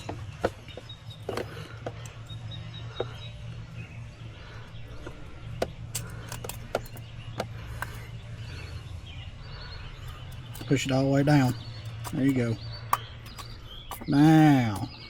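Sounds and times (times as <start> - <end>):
steady low hum: 0.0 - 15.0
clicks and taps of hand tools: 11.8 - 15.0.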